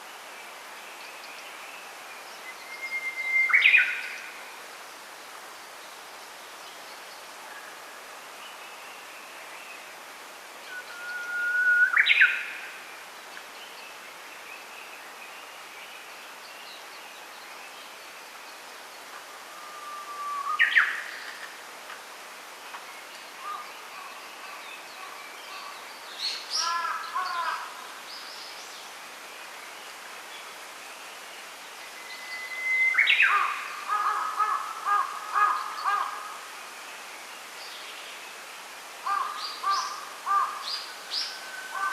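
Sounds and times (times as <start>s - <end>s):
songbird whistling song: 2.4s - 4.1s, 10.6s - 12.5s, 32.0s - 33.4s.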